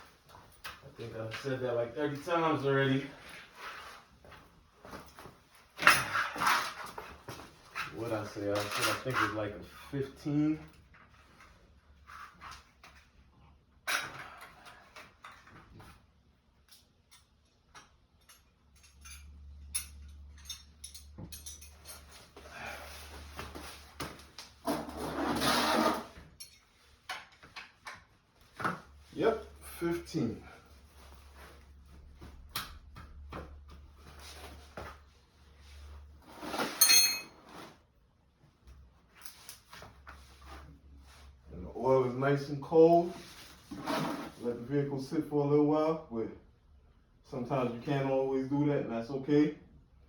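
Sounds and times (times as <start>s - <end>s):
light clicks and taps of tools: 16.6s - 22.1s
metal tool clank: 36.6s - 37.3s.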